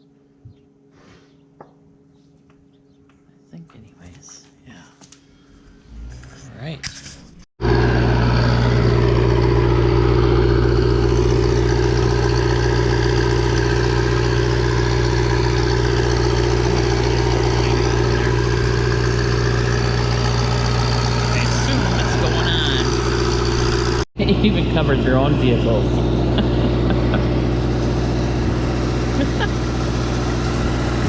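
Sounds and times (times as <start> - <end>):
spray machine engine drone: 7.6 - 31.0.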